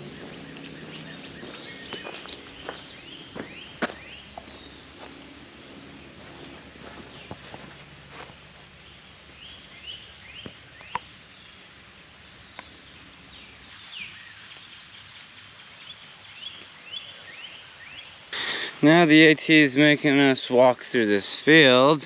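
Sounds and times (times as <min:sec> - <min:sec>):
soft footsteps on trail: 0:00.0 - 0:11.0
insects buzzing: 0:00.0 - 0:22.0.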